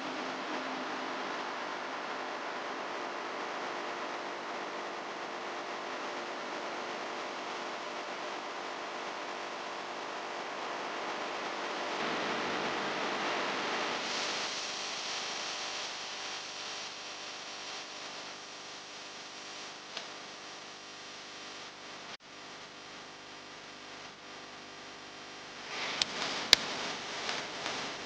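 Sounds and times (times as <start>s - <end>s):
steady hiss: 25.6s - 28.0s.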